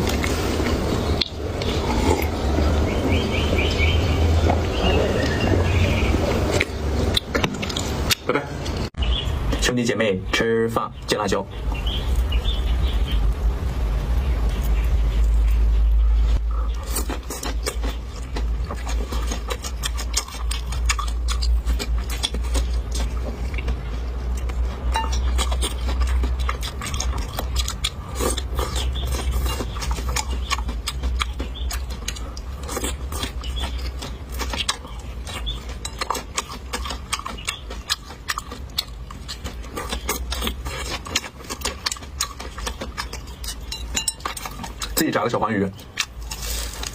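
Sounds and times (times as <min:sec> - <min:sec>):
chewing crunchy food: 0:00.0 - 0:09.7, 0:11.7 - 0:46.9
steady low rumble: 0:00.0 - 0:45.0.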